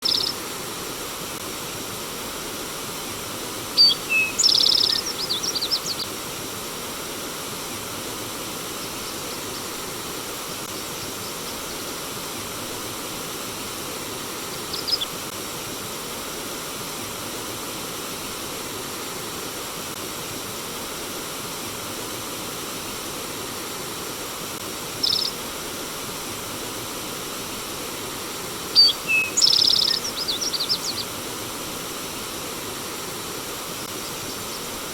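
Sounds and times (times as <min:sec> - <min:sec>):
songbird trilling and chirping: 0:00.0 - 0:00.3, 0:03.8 - 0:06.0, 0:25.0 - 0:25.4, 0:28.8 - 0:31.1
stream water rushing: 0:00.0 - 0:34.9.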